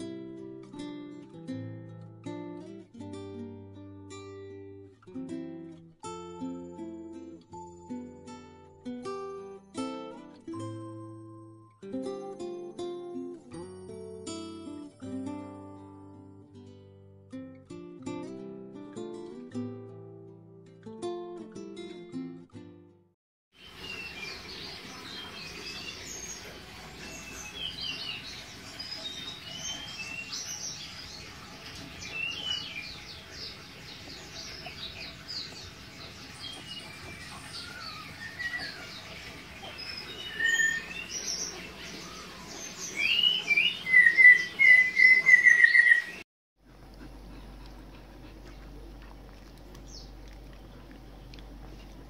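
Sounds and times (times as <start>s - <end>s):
songbirds chirping and singing: 23.6s - 46.2s.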